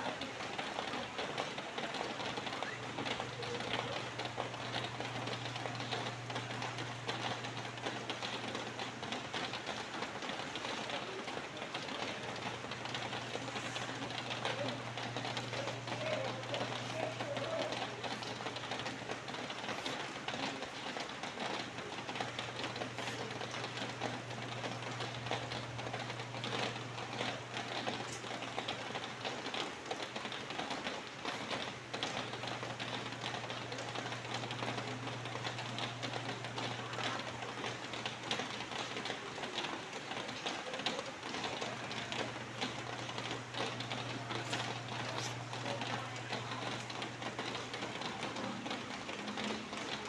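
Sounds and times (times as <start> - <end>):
rain pattering: 0.0 - 50.0.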